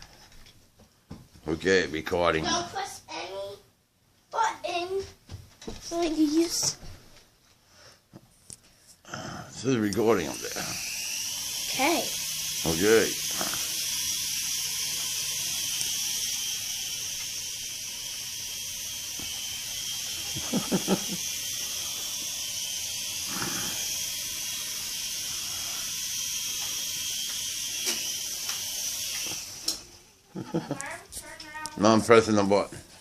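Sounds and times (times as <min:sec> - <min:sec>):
steady high hiss: 0:09.5 - 0:32.7.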